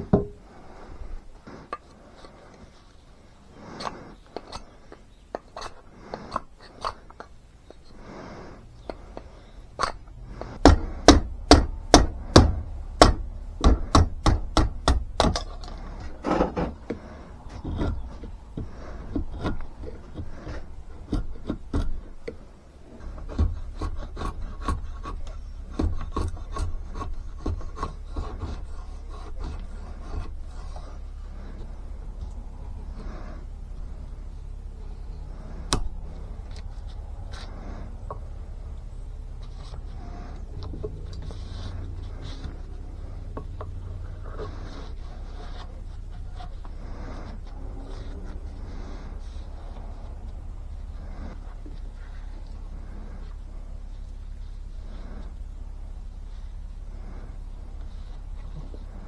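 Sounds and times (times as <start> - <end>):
sharp knocks on wood: 0.0 - 0.4, 10.6 - 15.5
knife scraping wood: 0.0 - 53.4.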